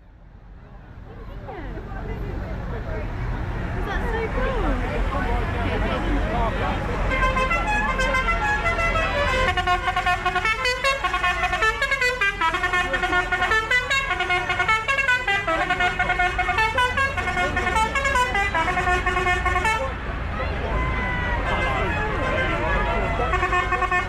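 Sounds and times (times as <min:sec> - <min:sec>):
tractor engines running: 0:00.0 - 0:24.0
musical vehicle horn tune: 0:07.1 - 0:20.0, 0:21.4 - 0:24.0.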